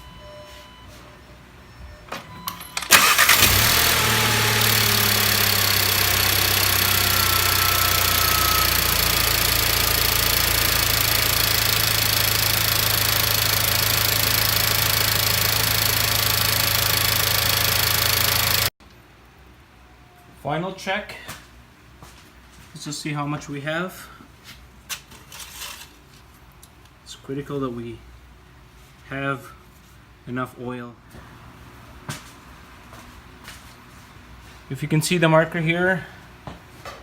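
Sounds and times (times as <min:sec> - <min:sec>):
car engine starting and idling: 0:02.4 - 0:18.8.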